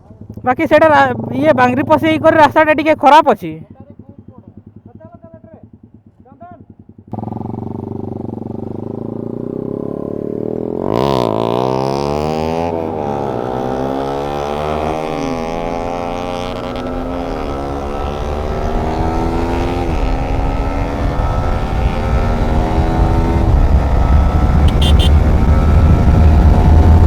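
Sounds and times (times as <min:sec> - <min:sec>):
motorcycle engine accelerating: 0:00.0 - 0:03.2, 0:05.6 - 0:27.0
wind rumble on microphone: 0:17.3 - 0:27.0.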